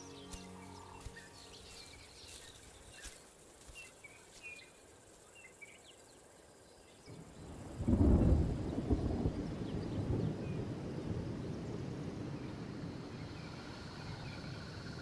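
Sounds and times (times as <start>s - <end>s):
bird chirps: 0.0s - 7.2s
low thunder rumble: 7.2s - 15.0s.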